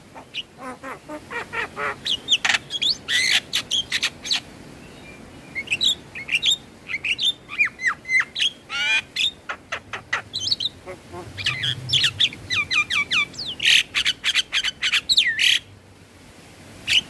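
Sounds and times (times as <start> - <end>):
harsh rasping bird call: 7.5 - 15.6
mynas chirping and whistling: 10.2 - 15.6.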